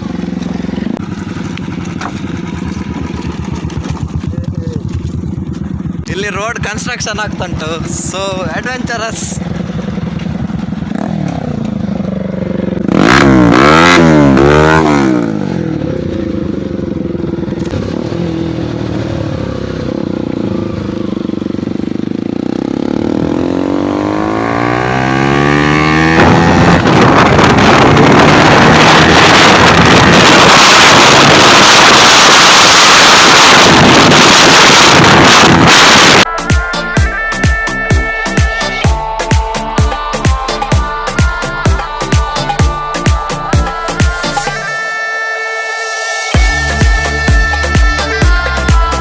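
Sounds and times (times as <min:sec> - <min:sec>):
dirt bike engines revving: 0:00.0 - 0:44.7
engine accelerating: 0:00.0 - 0:44.7, 0:45.7 - 0:49.0.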